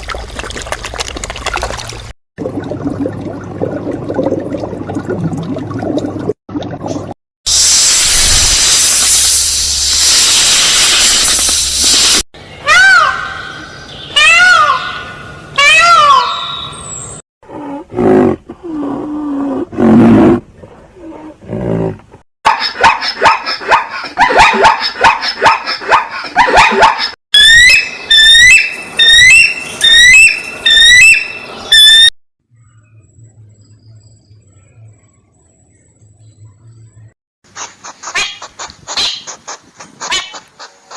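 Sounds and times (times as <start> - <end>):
animal call sweeping up and down: 37.5 - 40.9.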